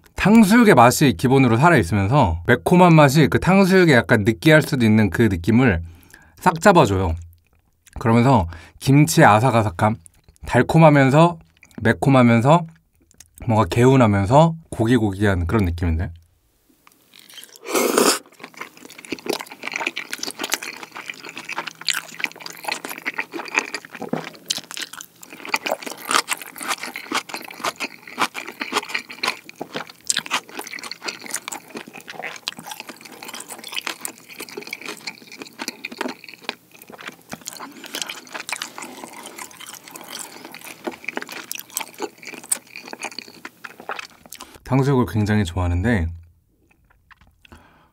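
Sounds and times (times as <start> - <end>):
wet intake of breath: 17.6 - 18.2, 47.5 - 47.9
wet chewing smacking: 18.2 - 44.6, 46.6 - 47.6.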